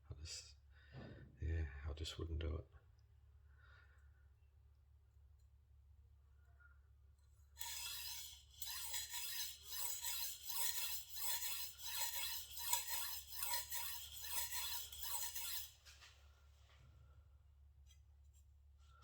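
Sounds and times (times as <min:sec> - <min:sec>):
knife blade scraping on whetstone: 0:07.6 - 0:16.0.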